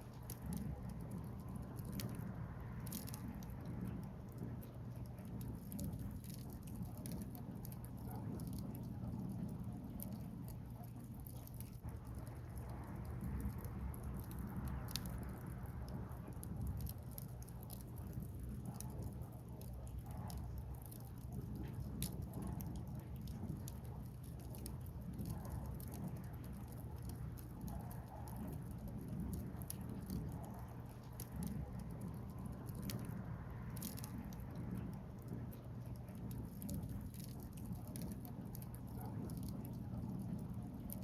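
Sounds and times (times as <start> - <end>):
wood fire crackling and popping: 0.0 - 41.0.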